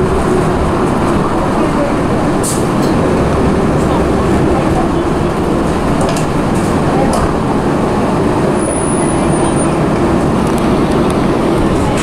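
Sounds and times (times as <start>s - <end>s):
train rumbling: 0.0s - 12.0s
voices: 0.0s - 12.0s.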